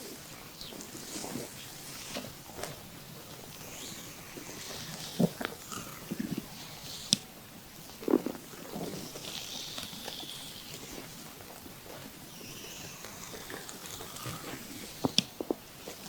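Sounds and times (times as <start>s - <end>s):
oiled hands sliding over skin: 0.0s - 7.3s
stomach gurgling: 0.0s - 16.0s.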